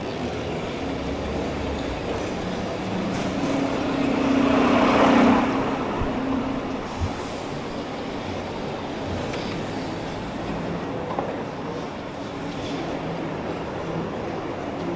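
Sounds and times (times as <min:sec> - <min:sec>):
vehicle engine passing: 0:01.5 - 0:07.2.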